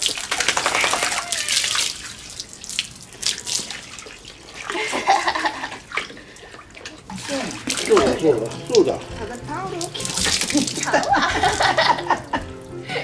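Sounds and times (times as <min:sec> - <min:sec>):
water pouring and splashing: 0:00.0 - 0:12.4.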